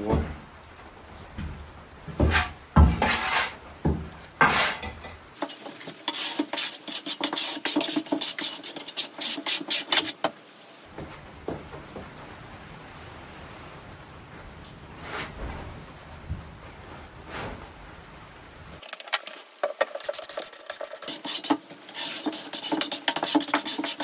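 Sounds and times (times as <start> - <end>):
trowel scraping mortar: 2.2 - 3.6, 4.4 - 10.3, 18.8 - 24.0.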